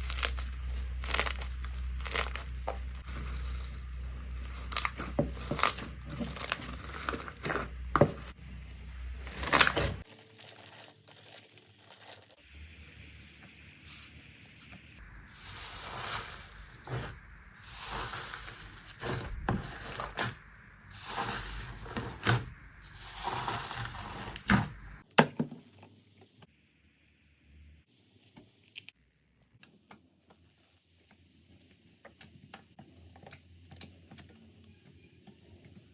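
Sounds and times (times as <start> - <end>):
sticky slime squishing: 0.0 - 2.9.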